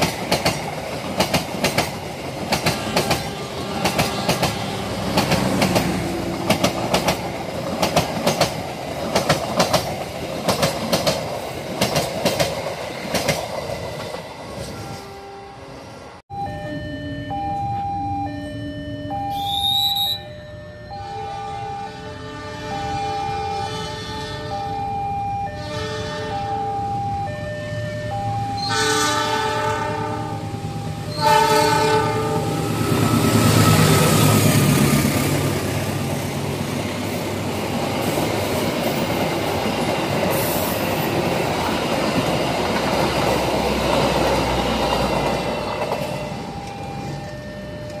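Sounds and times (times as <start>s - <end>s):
wheels clattering on rails: 0.0s - 14.8s
train passing with rumble: 0.0s - 16.2s, 21.0s - 48.0s
train horn blasts: 2.8s - 5.2s, 20.9s - 24.6s, 25.5s - 26.6s, 28.6s - 30.4s, 31.1s - 34.1s
crossing warning signal tones: 14.6s - 35.2s, 44.7s - 48.0s.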